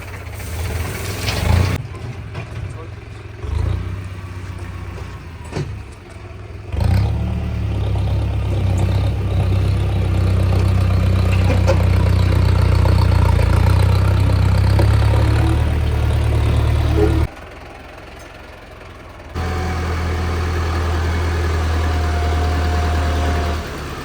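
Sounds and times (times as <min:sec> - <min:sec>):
tractor diesel engine: 0:00.0 - 0:24.0.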